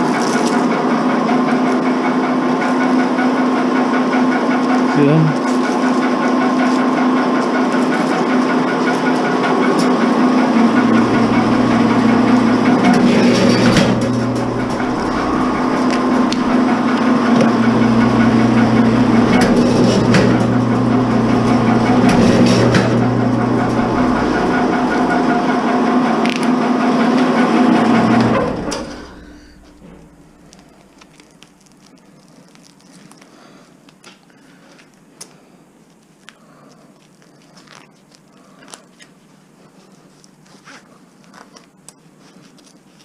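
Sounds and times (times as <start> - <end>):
wire-stripping machine motor: 0.5 - 31.1
cable cracking and crunching: 30.0 - 33.3.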